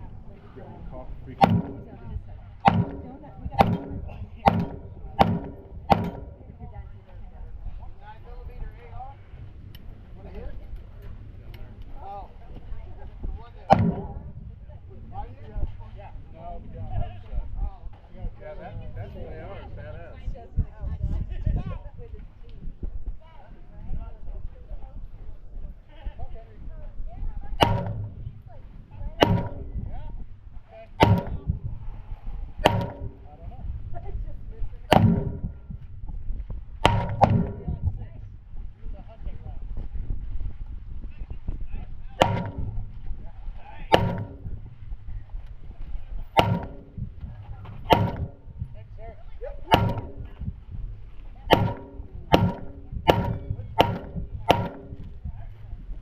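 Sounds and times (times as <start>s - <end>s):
gunshots: 1.3s - 6.5s, 13.7s - 14.4s, 27.6s - 28.6s, 29.2s - 29.9s, 31.0s - 31.6s, 34.9s - 35.6s, 42.2s - 43.0s, 43.9s - 44.7s, 46.4s - 48.5s, 49.7s - 50.4s, 51.5s - 55.1s.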